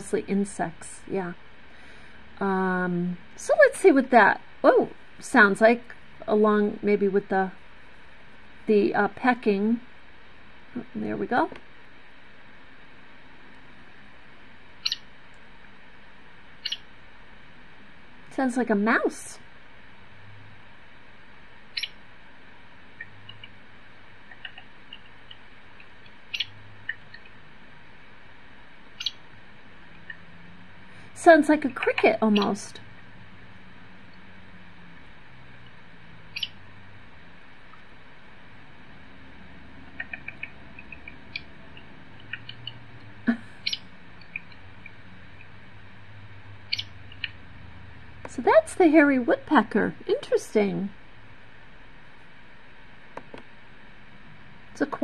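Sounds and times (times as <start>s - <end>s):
woodpecker calls through speaker: 14.8s - 15.0s, 16.6s - 16.8s, 21.8s - 22.0s, 26.2s - 27.2s, 29.0s - 29.2s, 31.6s - 32.8s, 36.3s - 36.6s, 46.7s - 47.4s
woodpecker calls over speakers: 14.8s - 15.1s, 16.6s - 16.9s, 21.7s - 22.0s, 26.0s - 27.4s, 29.0s - 29.3s, 31.6s - 32.8s, 36.3s - 36.6s, 39.9s - 45.6s, 46.7s - 47.4s.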